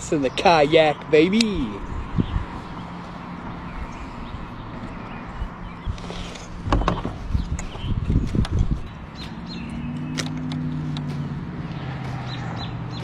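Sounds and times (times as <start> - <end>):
dull thumps: 6.6 - 7.2
handling clicks and knocks: 6.7 - 11.6.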